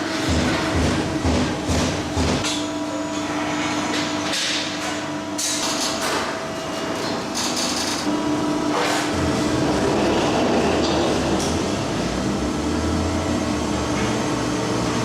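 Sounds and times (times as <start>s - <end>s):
metalworking machinery humming: 0.0s - 15.0s.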